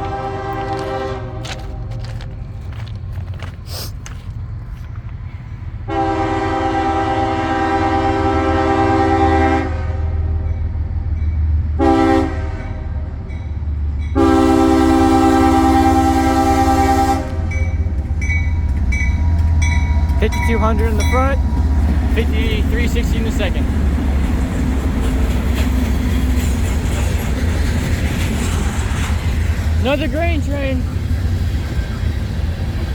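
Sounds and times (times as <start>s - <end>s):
locomotive air horn chord: 0.0s - 1.9s, 5.9s - 10.4s, 11.8s - 13.1s, 14.1s - 17.9s
locomotive low rumble: 0.0s - 32.9s.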